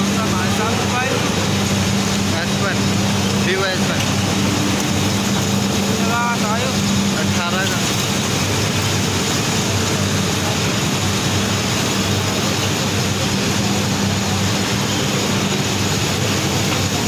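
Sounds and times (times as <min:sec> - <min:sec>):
machinery droning: 0:00.0 - 0:17.0.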